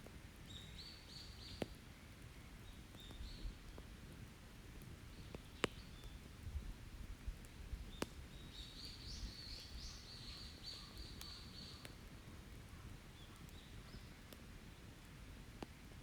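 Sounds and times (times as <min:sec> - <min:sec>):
campfire pops: 0:04.7 - 0:09.8.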